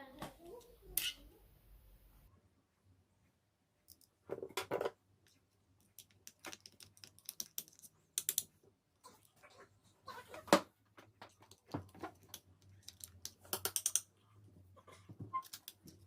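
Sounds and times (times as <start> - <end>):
small parts clicking and tapping: 3.8 - 9.4, 11.0 - 14.2, 15.2 - 16.0.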